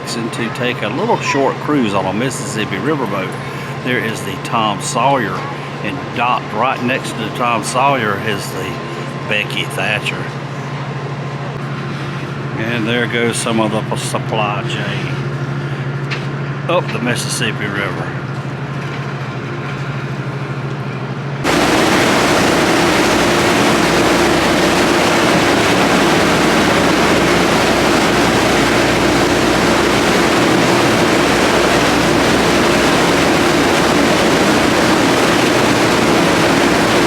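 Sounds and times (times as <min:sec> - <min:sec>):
boat engine hum: 0:00.0 - 0:20.6, 0:21.4 - 0:37.0
rushing water: 0:21.4 - 0:37.0
wind noise: 0:21.4 - 0:37.0.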